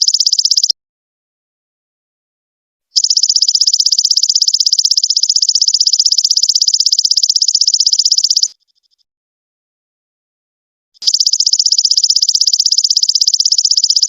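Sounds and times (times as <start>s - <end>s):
high-pitched insect trill: 0.0s - 0.7s, 3.0s - 8.6s, 11.0s - 14.0s.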